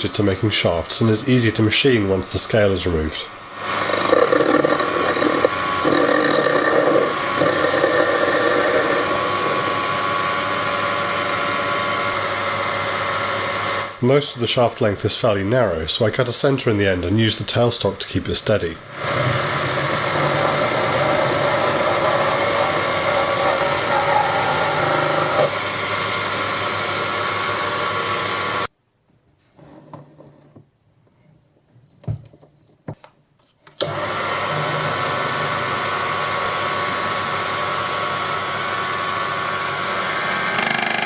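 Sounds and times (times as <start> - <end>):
lathe motor whining: 3.5 - 13.9, 18.9 - 28.7, 33.8 - 41.0.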